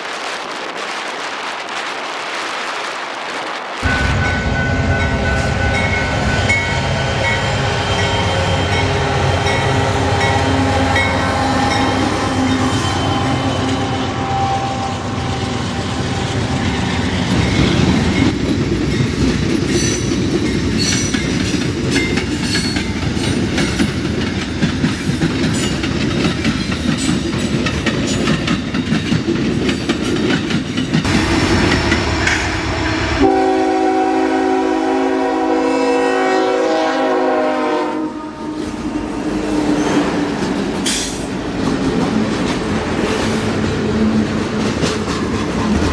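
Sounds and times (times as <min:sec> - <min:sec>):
train rumbling past: 0:00.0 - 0:45.9
locomotive air horn: 0:06.5 - 0:16.6, 0:32.8 - 0:39.2.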